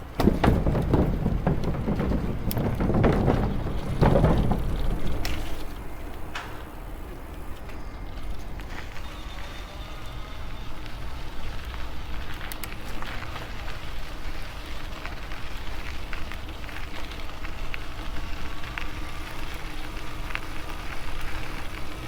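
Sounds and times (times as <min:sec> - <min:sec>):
small clicks and crackles: 0:10.8 - 0:22.0.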